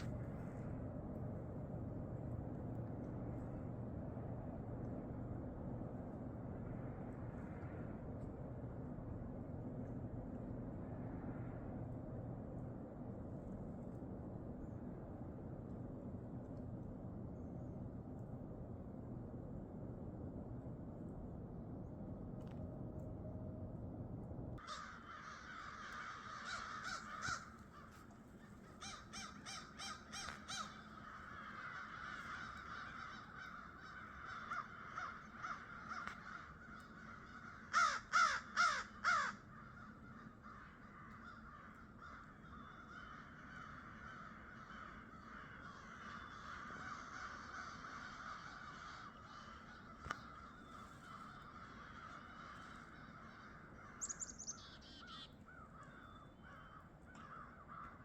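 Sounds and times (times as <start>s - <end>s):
steady background hum: 0.0s - 58.0s
crows cawing: 24.6s - 58.0s.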